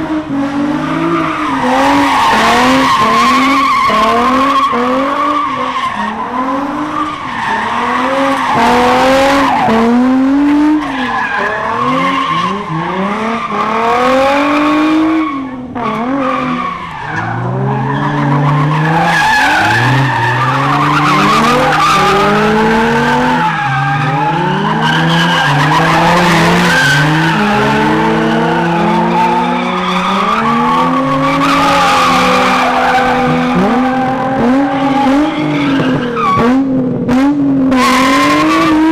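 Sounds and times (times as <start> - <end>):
car engines revving hard: 0.0 - 38.9
tyres squealing and skidding: 0.6 - 36.6, 37.7 - 38.9.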